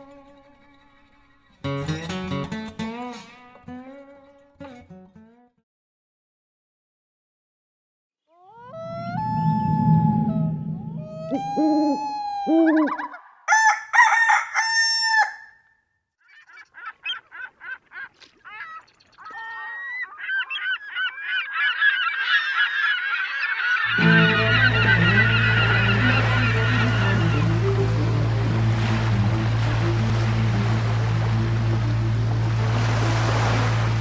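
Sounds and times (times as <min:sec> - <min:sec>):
geese honking: 0:20.6 - 0:34.0
low hum with rushing noise: 0:24.0 - 0:34.0.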